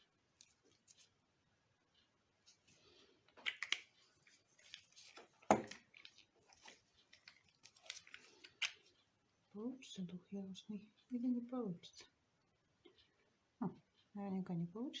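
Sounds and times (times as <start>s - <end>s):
small clicks and rustles: 0.0s - 1.2s, 1.8s - 9.2s.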